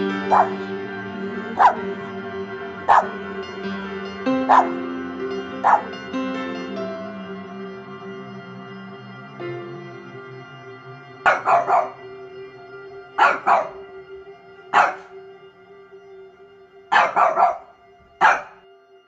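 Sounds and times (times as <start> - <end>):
background music with held notes: 0.0 - 19.0
dog barking: 0.2 - 0.7, 1.6 - 1.8, 2.9 - 3.2, 4.5 - 4.8, 5.6 - 6.0, 11.2 - 12.0, 13.2 - 13.9, 14.7 - 15.1, 16.9 - 18.6.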